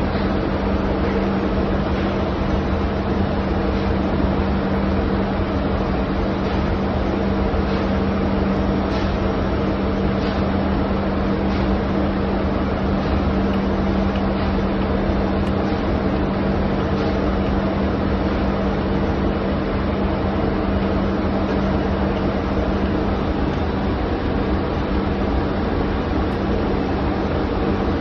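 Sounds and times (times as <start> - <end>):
engine room machinery drone: 0.0 - 28.0.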